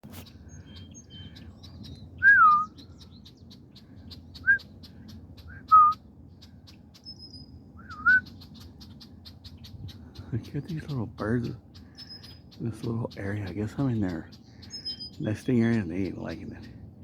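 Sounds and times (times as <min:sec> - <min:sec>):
bird alarm whistles: 0:02.2 - 0:02.8, 0:05.5 - 0:06.0, 0:07.0 - 0:08.3.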